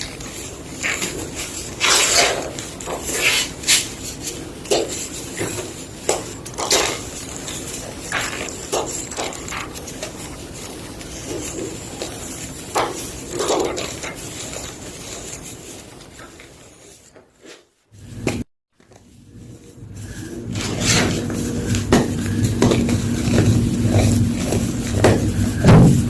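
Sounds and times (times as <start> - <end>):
chalk being crunched: 0.0 - 17.7.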